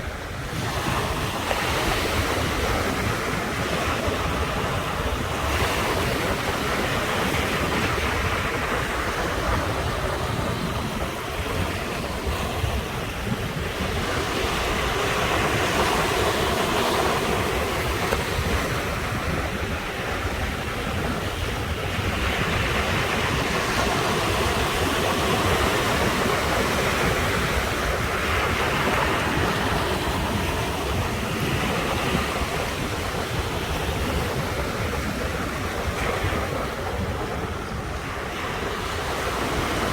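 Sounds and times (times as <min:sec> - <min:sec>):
surf washing against shore: 0:00.0 - 0:39.9.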